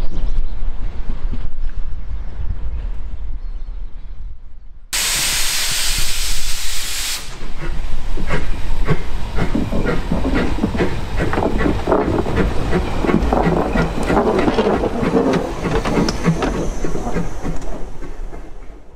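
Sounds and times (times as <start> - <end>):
steam train wheels clattering: 5.0 - 18.9.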